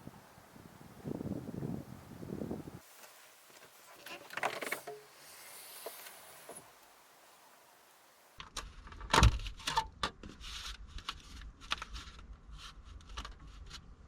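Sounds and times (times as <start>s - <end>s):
objects clicking and knocking: 3.6s - 5.1s.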